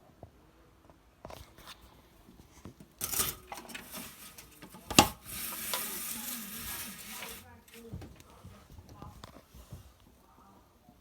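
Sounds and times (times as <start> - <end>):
crackling hiss: 1.9 - 8.4.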